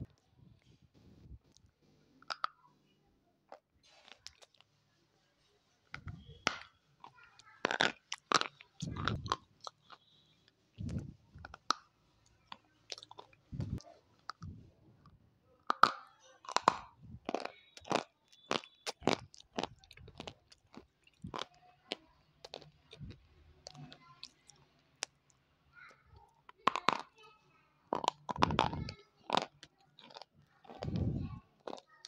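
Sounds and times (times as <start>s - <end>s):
crunchy biting and chewing: 6.0s - 10.1s, 10.8s - 14.6s, 15.7s - 25.3s, 26.5s - 27.2s, 27.9s - 32.0s.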